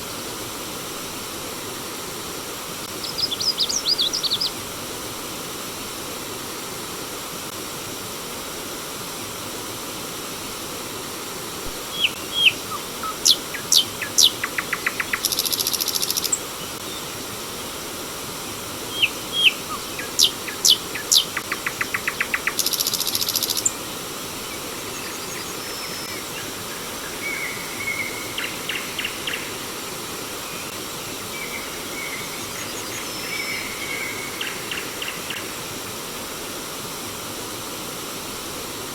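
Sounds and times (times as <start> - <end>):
stream water rushing: 0.0 - 38.9
songbird singing buzzy trill: 3.0 - 4.6, 11.8 - 17.2, 18.8 - 35.4.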